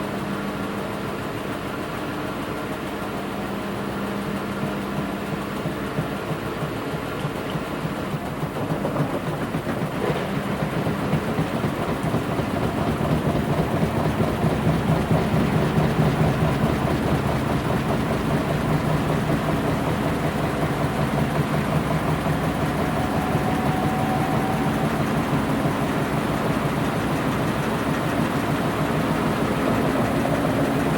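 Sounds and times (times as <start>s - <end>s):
washing machine tumbling laundry: 1.1s - 30.9s.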